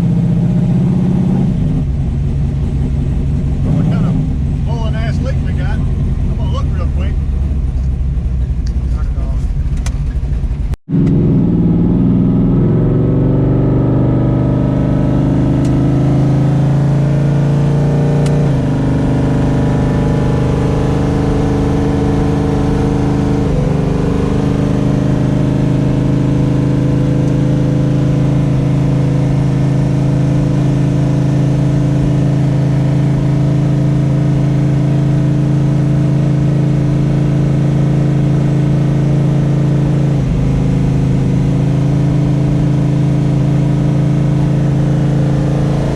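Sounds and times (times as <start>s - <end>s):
car engine idling: 1.8s - 11.1s.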